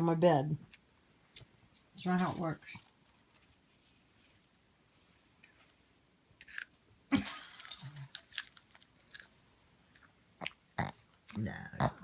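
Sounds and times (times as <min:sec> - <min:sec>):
dog crunching popcorn: 0:07.4 - 0:09.4.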